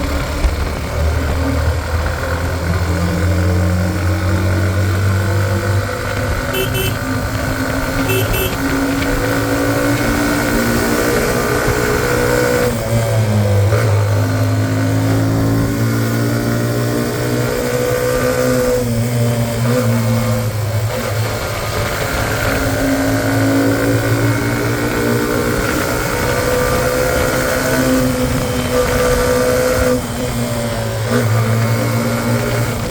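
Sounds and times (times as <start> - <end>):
motorcycle engine under load: 0.0 - 16.0
double beeps: 8.0 - 8.6.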